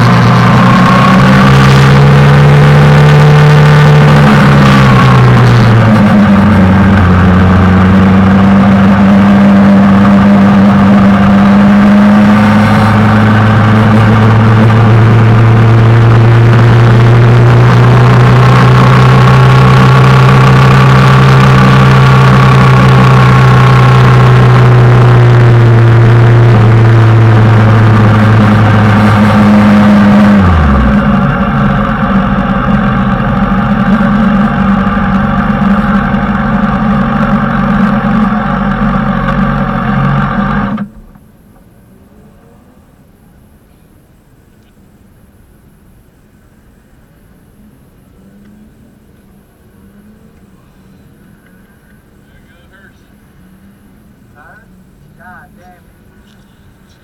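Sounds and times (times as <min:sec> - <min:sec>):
motorcycle engine running hard: 0:00.0 - 0:41.0.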